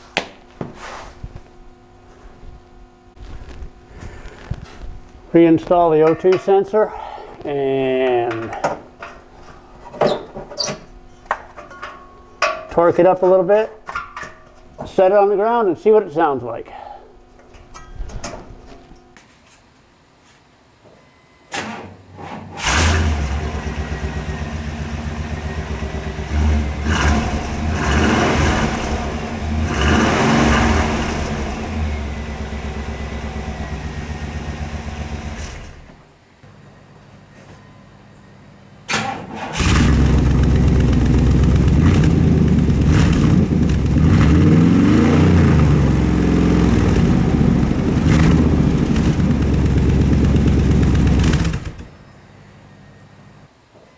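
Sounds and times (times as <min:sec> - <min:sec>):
pickup engine idling and revving: 0:22.6 - 0:35.9, 0:39.6 - 0:52.0.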